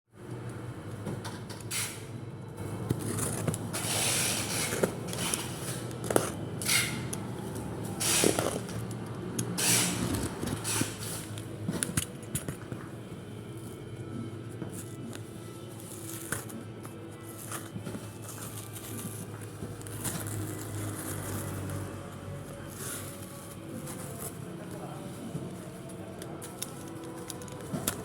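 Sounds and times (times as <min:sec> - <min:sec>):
packaging rustling and crinkling: 0:14.7 - 0:21.9.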